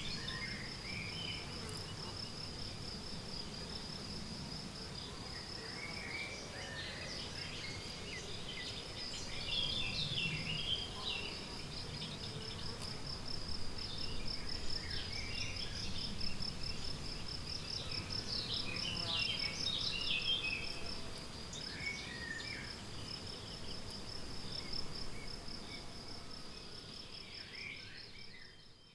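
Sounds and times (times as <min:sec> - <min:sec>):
songbirds calling: 0:00.0 - 0:02.4, 0:04.9 - 0:13.0, 0:13.8 - 0:23.9.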